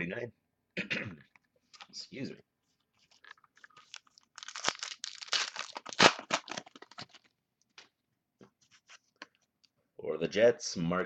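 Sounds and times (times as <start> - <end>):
wrapper tearing and crinkling: 3.1 - 7.3.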